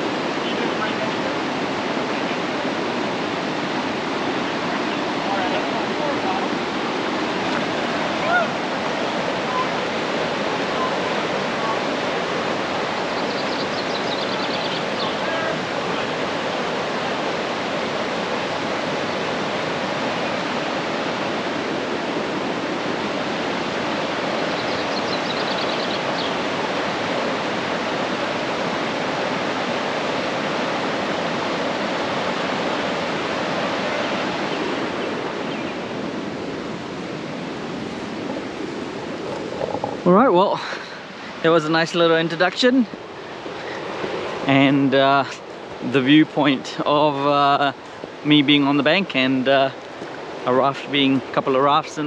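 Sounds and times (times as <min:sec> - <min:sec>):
whitewater rapids rushing: 0:00.0 - 0:52.0
faint high twittering: 0:13.0 - 0:15.5.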